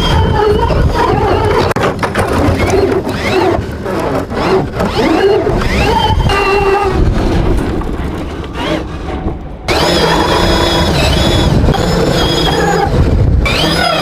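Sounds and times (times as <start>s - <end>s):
toy car motor whining: 0.0s - 1.8s, 2.4s - 7.0s, 9.7s - 14.0s
rumbling wheel noise: 0.0s - 14.0s.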